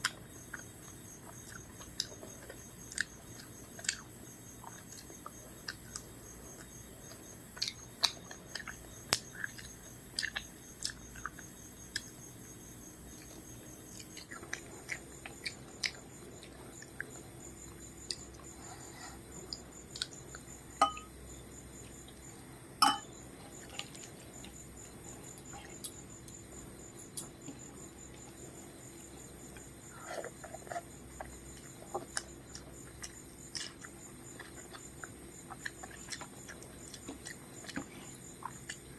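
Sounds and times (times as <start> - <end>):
chewing food: 0.0 - 21.0, 23.5 - 38.9
steady high-pitched whine: 8.6 - 35.2
clinks of dishes: 20.8 - 21.1, 22.8 - 23.1
plate being handled: 20.8 - 21.1, 22.8 - 23.1.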